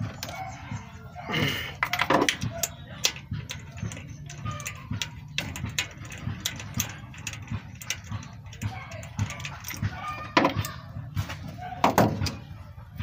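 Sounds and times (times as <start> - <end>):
metal tools knocking: 0.0 - 12.6
ratchet wrench clicking: 1.8 - 10.8.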